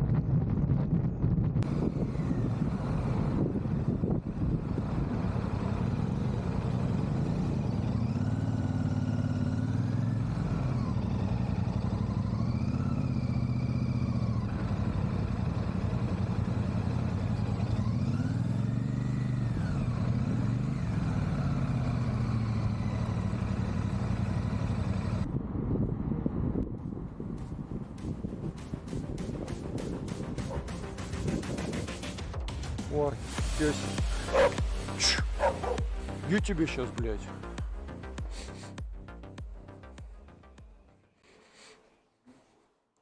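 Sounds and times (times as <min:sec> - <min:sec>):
wind rush: 0:00.0 - 0:05.4, 0:25.2 - 0:32.0
motorcycle engine running: 0:00.0 - 0:41.1.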